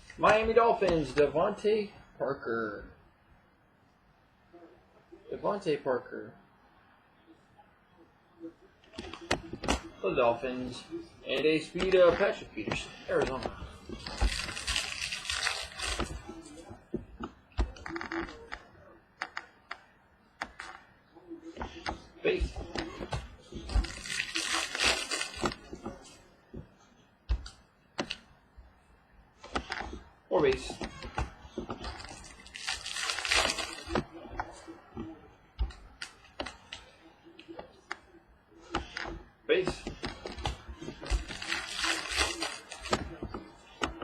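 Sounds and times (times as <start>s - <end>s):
cards and wrapper rustling: 13.2s - 16.2s, 23.7s - 25.7s, 31.9s - 34.0s, 41.0s - 43.2s
cards clicking and snapping: 39.8s - 44.0s.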